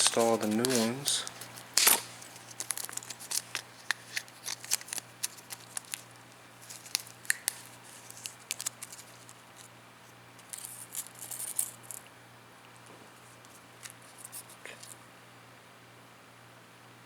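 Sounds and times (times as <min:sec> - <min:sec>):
short crinkle: 0:00.0 - 0:09.7.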